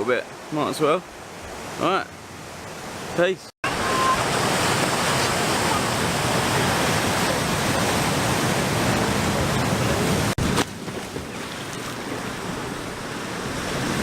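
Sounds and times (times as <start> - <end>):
surf breaking on beach: 3.7 - 14.0.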